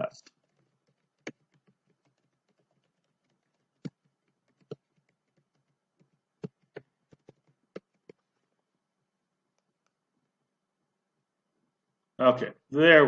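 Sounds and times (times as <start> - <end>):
typing on keyboard: 0.0 - 8.4.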